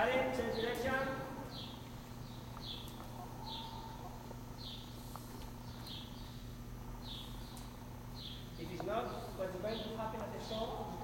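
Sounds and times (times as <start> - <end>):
steady low hum: 0.0 - 11.0
small bird chirping: 1.5 - 5.0, 7.0 - 8.6.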